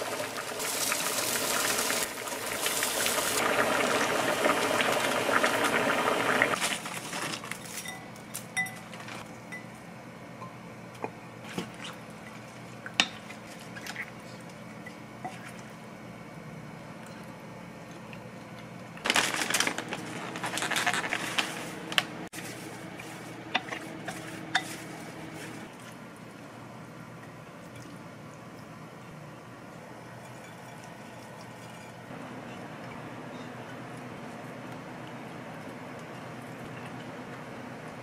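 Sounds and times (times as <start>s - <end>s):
dishes and utensils clinking: 23.5s - 25.4s.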